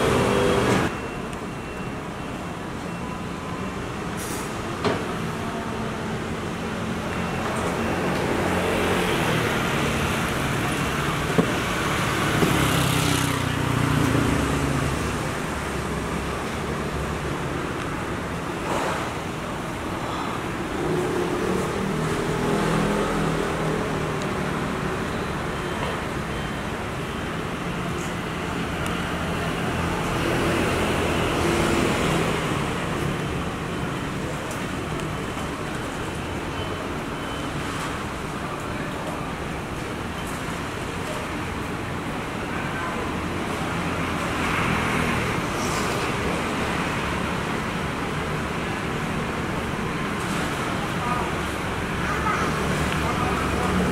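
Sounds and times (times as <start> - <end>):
street traffic: 0.0 - 53.9.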